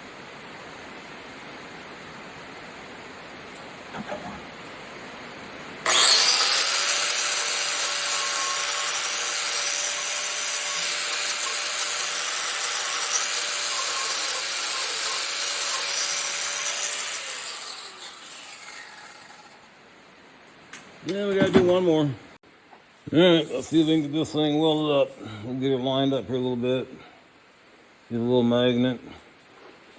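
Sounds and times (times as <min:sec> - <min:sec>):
angle grinder cutting metal: 0:05.8 - 0:19.7.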